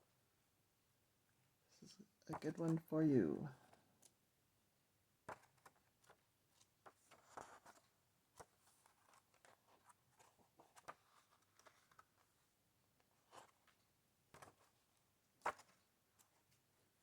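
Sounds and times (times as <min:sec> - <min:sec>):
book pages turning: 0:05.3 - 0:12.4, 0:14.4 - 0:14.8, 0:15.4 - 0:16.6.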